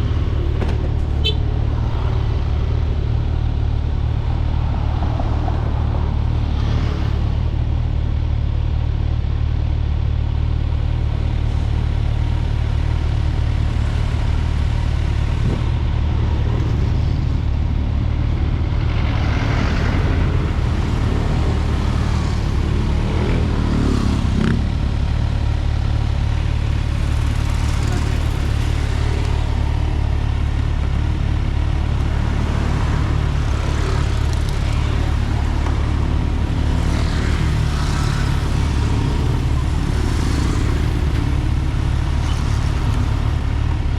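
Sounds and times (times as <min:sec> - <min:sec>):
motorcycle engine hum: 0:00.0 - 0:43.9
road and wind noise: 0:00.0 - 0:43.9.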